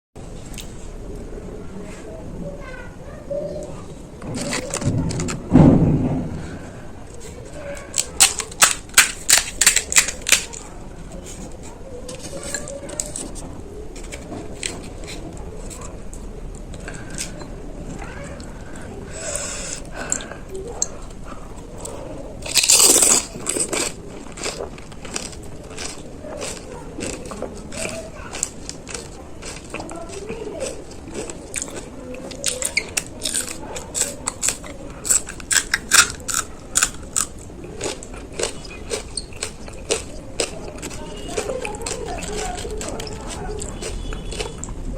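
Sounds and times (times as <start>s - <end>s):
crisp shells crunching in mouth: 7.5s - 10.7s, 21.8s - 44.9s.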